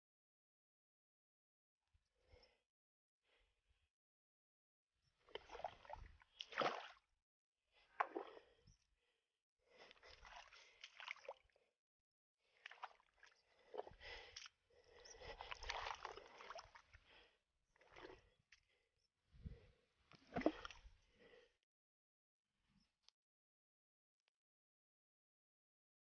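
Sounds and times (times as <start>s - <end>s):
water sloshing and splashing: 5.2s - 7.1s, 8.0s - 8.6s, 9.7s - 11.6s, 12.5s - 18.3s, 19.5s - 21.4s.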